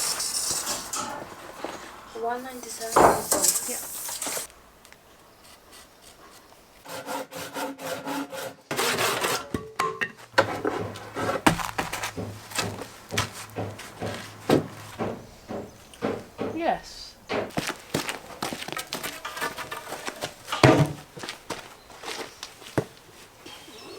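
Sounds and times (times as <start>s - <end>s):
hand saw rasping through wood: 0.0s - 1.6s, 2.2s - 4.5s, 5.4s - 9.5s.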